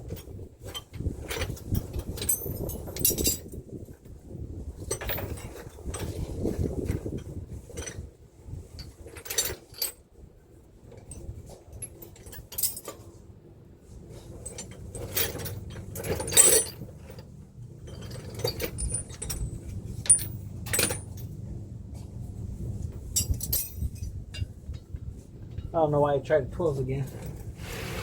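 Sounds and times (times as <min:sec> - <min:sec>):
sockets and ratchet clinking: 0:00.0 - 0:03.6, 0:14.4 - 0:21.3.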